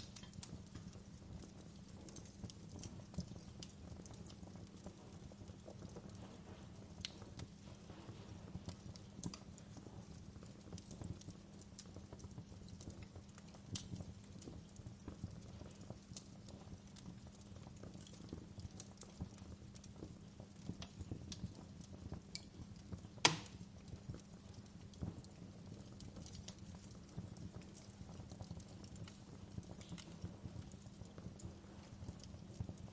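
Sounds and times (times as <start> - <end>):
low fire rumble: 0.0 - 32.9
wood fire crackling: 0.0 - 32.9
loud fire pop: 23.2 - 23.6.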